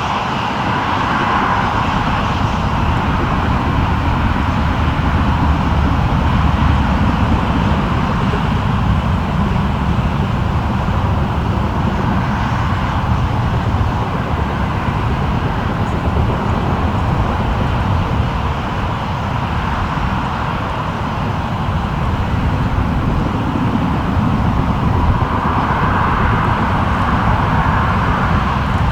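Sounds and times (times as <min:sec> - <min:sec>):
jet engines rumbling: 0:00.0 - 0:28.9.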